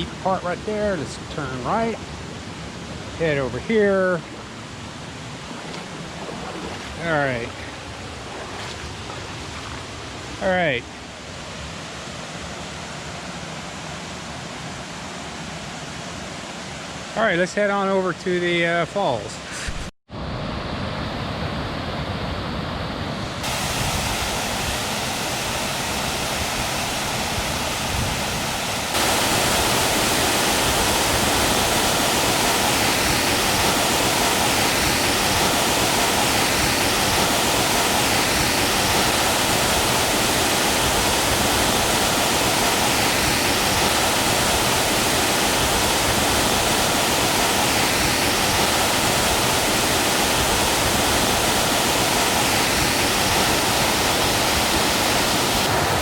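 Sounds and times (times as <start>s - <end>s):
waterfall rushing: 0.0s - 15.2s, 23.4s - 56.0s.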